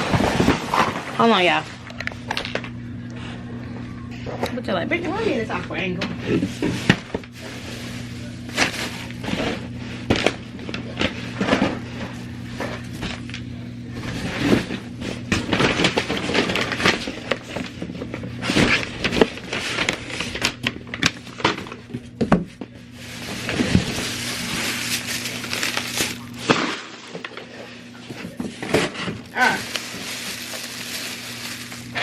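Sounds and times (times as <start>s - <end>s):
steady low hum: 0.0s - 32.0s
household items being handled: 6.0s - 10.3s, 21.4s - 32.0s.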